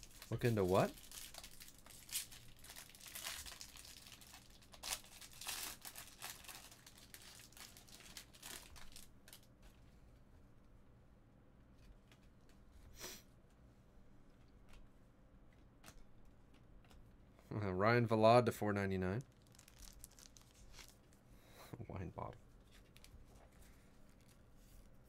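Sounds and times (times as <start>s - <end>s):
wrappers crinkling and tearing: 0.0s - 9.5s, 19.2s - 21.2s.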